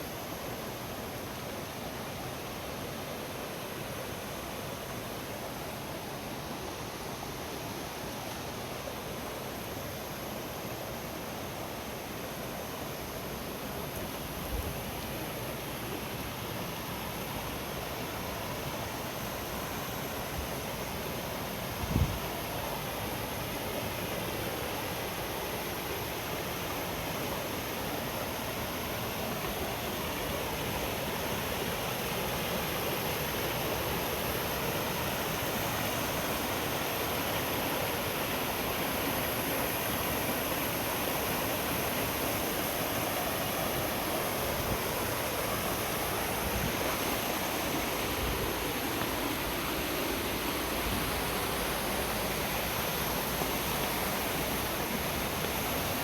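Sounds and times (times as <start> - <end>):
mountain stream rushing: 0.0 - 56.0.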